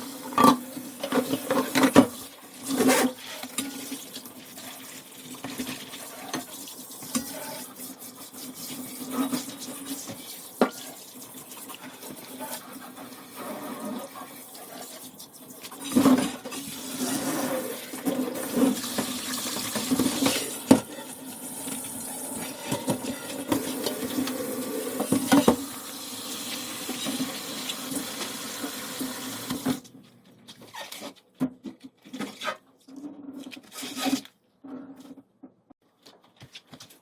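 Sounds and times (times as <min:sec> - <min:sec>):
tap water running into sink: 0:15.8 - 0:29.8.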